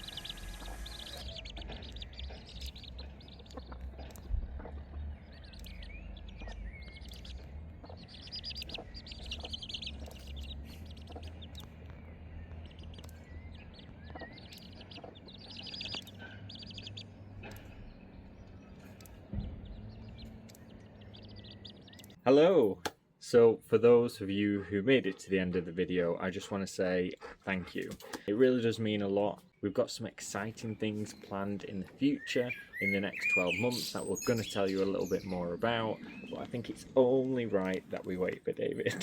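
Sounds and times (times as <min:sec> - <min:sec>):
steady low rumble: 0:00.0 - 0:22.2
birds chirping and singing: 0:00.0 - 0:22.7, 0:23.4 - 0:39.0.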